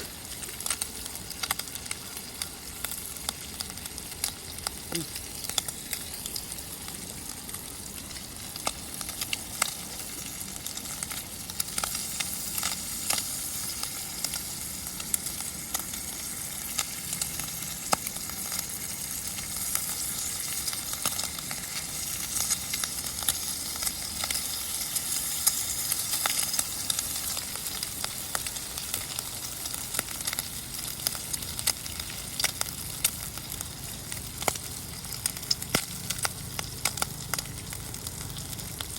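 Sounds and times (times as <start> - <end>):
bacon sizzling and popping: 0.0 - 38.9.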